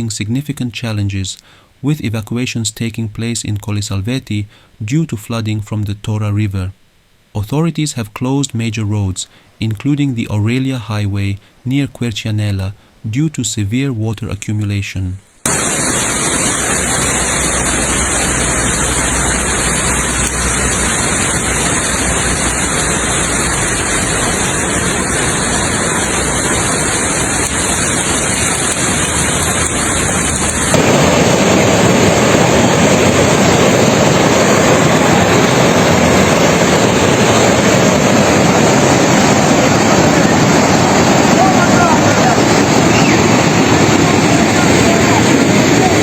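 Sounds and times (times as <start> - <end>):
heavy rain and flooding water: 15.5 - 46.0.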